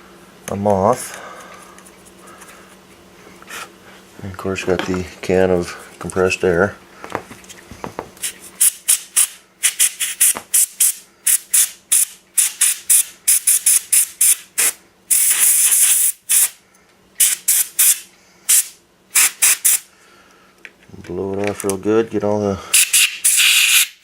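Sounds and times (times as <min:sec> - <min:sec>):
compressed air hissing blasts: 0:08.2 - 0:16.6, 0:17.2 - 0:19.9, 0:22.7 - 0:24.0.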